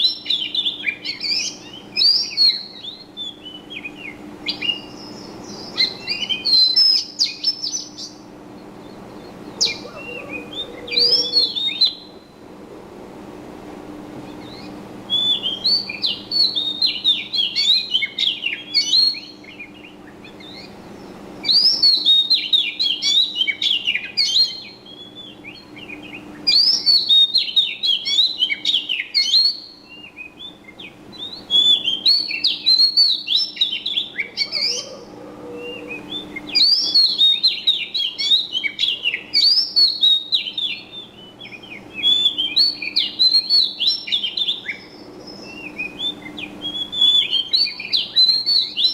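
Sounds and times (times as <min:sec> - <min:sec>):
songbird twittering warbles: 0:00.0 - 0:12.6, 0:14.2 - 0:48.9.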